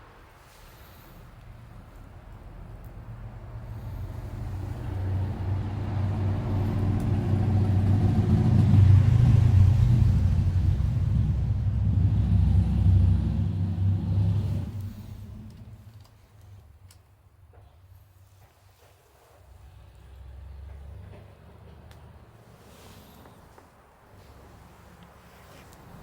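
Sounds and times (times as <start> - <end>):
motor vehicle engine: 1.6 - 16.2, 19.5 - 26.0.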